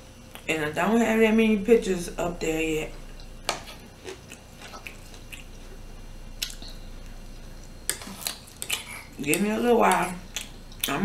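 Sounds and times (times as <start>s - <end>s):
person chewing and biting: 3.2s - 5.8s, 6.4s - 9.2s.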